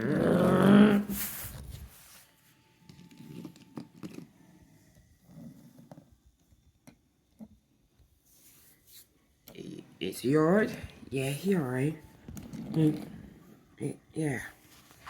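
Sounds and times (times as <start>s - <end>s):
person making wavering vocal sound: 0.0s - 1.2s.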